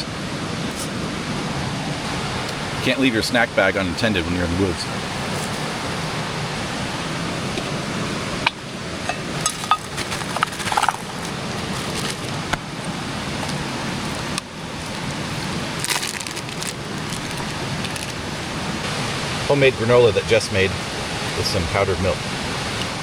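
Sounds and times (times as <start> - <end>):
creek water rushing: 0.0 - 23.0
handling clicks and crackles: 9.5 - 12.6, 13.4 - 18.2.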